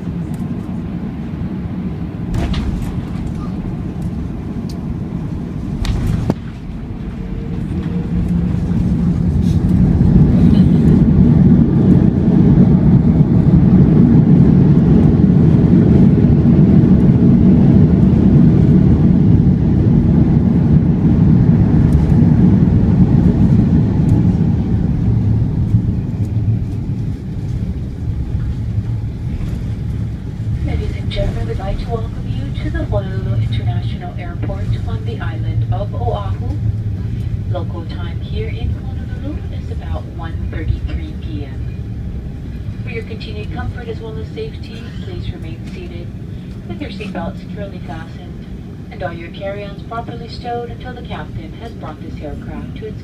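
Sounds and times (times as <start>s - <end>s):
jet engine reverse thrust roar: 0.0s - 53.0s.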